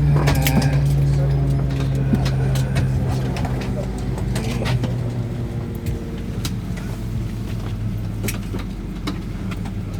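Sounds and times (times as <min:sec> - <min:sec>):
aircraft cabin hum: 0:00.0 - 0:09.9.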